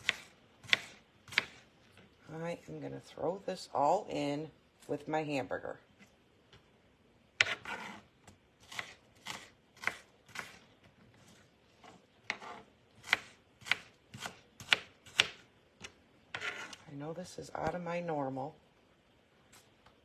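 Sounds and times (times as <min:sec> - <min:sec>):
knife chopping on cutting board: 0:00.0 - 0:01.6, 0:07.4 - 0:07.9, 0:08.7 - 0:10.6, 0:12.3 - 0:15.4.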